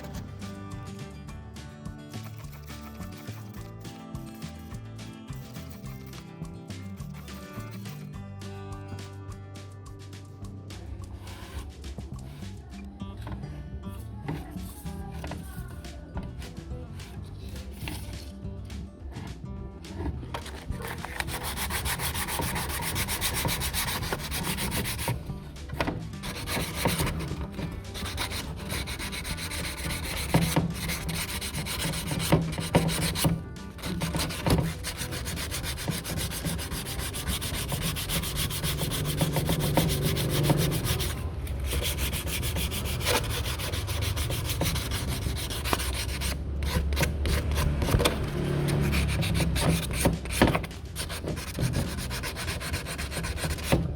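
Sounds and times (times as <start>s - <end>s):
sanding abrasive rubbing: 2.2s - 6.2s, 20.4s - 25.3s, 26.2s - 53.9s.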